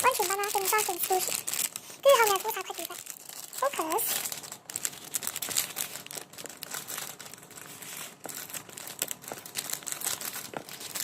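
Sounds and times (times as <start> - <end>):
foam toys crinkling: 0.0 - 11.0.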